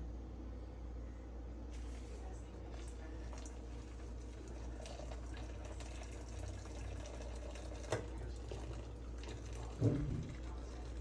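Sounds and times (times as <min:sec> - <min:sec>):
steady low hum: 0:00.0 - 0:05.7, 0:08.1 - 0:11.0.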